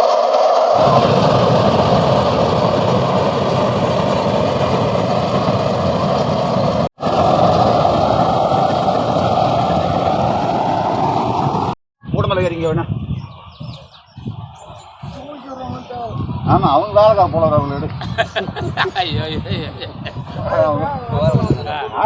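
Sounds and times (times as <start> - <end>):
harvester diesel engine and machinery: 0.0 - 12.5.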